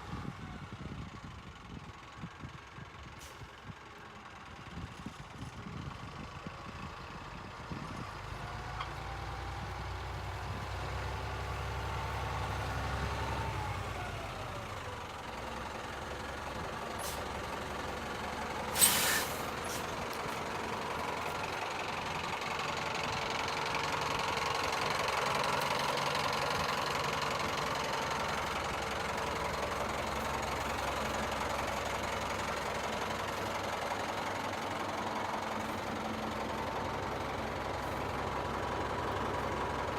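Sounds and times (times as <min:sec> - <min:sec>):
truck diesel engine running: 0:00.0 - 0:39.9
air brake hiss: 0:17.0 - 0:17.3, 0:18.7 - 0:19.9.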